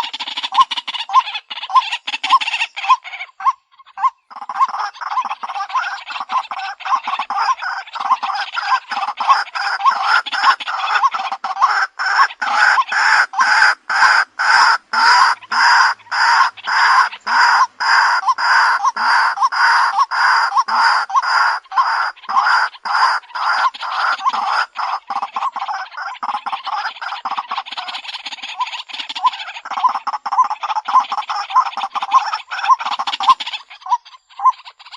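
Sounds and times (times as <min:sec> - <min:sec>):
waterhen harsh croaking calls: 0:00.0 - 0:34.9.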